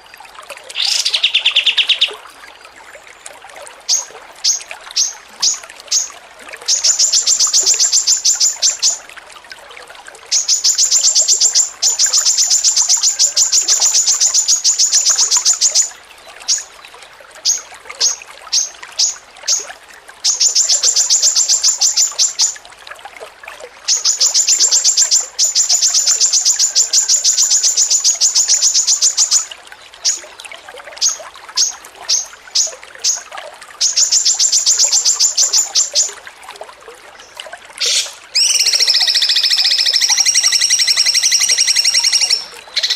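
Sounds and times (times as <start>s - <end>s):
songbird fast chattering: 37.8s - 42.9s.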